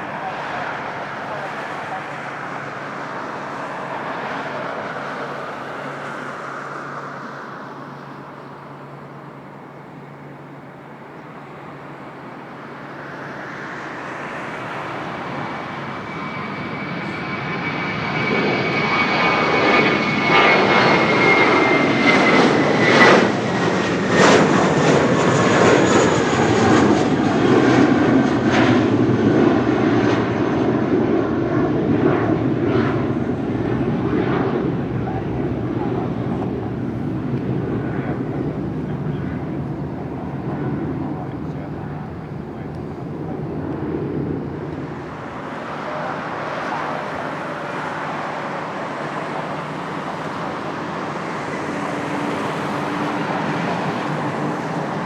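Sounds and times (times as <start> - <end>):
jet engine high whine: 0.0 - 55.0
jet engine roar with pops: 13.0 - 55.0.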